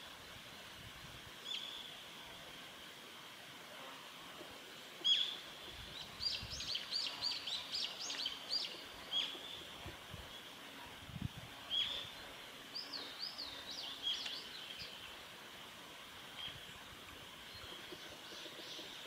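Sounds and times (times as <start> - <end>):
bird chirping: 11.7 - 15.2.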